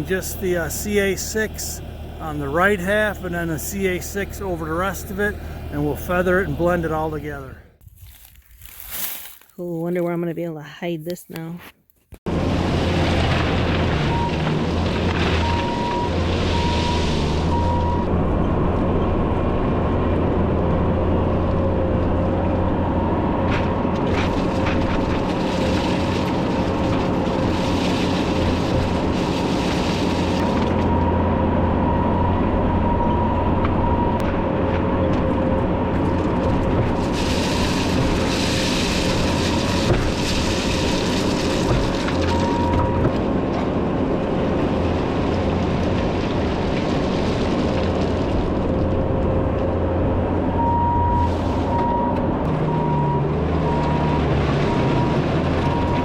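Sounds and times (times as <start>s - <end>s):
diesel engine running with whine: 0.0s - 8.8s, 12.3s - 56.0s
loader clanking on gravel: 12.6s - 17.5s, 23.4s - 31.0s, 34.2s - 49.8s.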